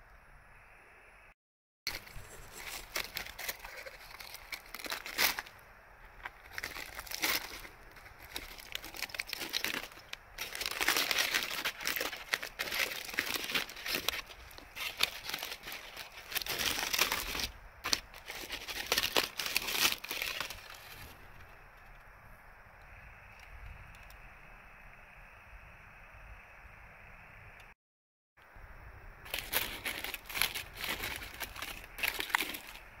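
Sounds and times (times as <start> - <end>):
crinkling and crumpling: 1.9 - 22.0, 29.3 - 33.0.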